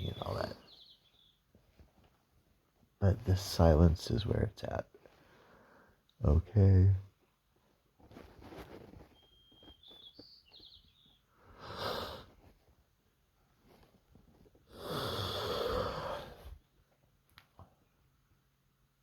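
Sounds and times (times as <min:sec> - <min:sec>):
faint bird chirping: 0:00.0 - 0:01.9, 0:08.8 - 0:12.2
person breathing: 0:05.1 - 0:06.0, 0:14.7 - 0:16.6.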